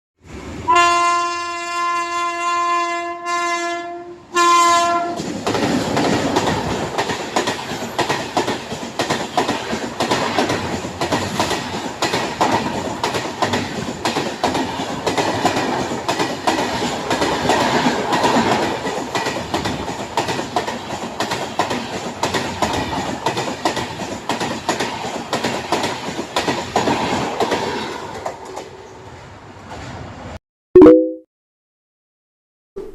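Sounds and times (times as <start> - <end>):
train horn: 0.7 - 5.2
train wheels clattering over rail joints: 5.2 - 28.7.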